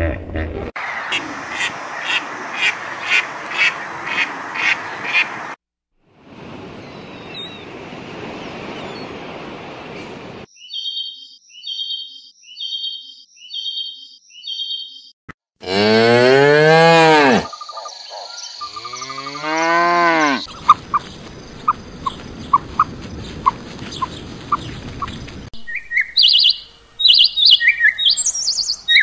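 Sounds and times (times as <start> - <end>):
noisy outdoor sound: 0.0 - 29.0
ducks quacking: 0.8 - 5.4, 20.0 - 25.1
high chirping calls: 10.5 - 15.1, 17.4 - 29.0.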